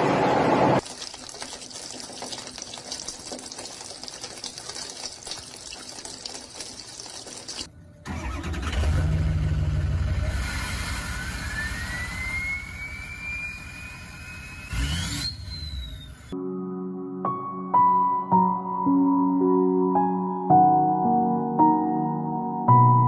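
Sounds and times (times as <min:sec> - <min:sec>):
vehicle engine hum: 0:07.7 - 0:16.4
high whine rising in pitch: 0:10.2 - 0:16.4.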